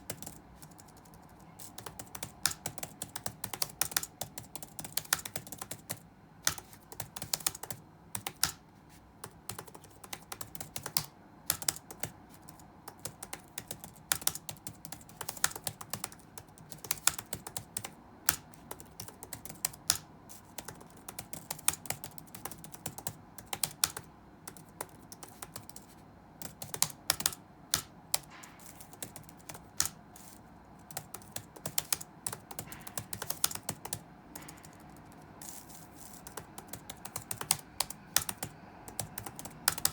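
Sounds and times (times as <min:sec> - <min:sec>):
faint room noise: 0:00.0 - 0:39.9
keyboard key clicks: 0:26.4 - 0:39.9.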